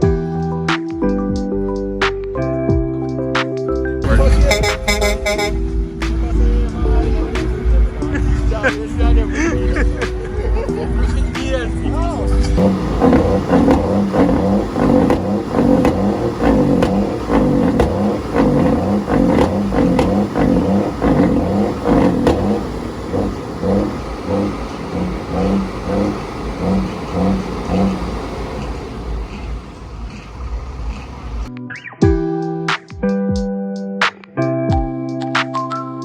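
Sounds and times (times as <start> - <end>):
truck engine revving: 4.1 - 11.1, 12.4 - 31.5.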